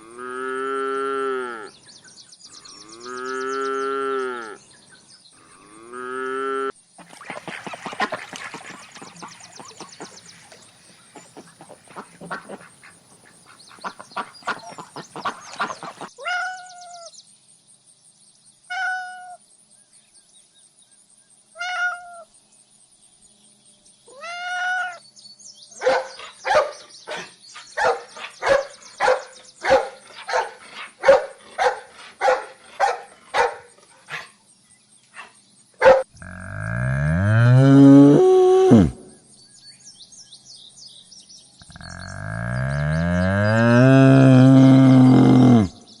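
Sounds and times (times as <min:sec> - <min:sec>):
animal calls: 0:07.0 - 0:17.1, 0:25.8 - 0:34.4, 0:41.6 - 0:45.8.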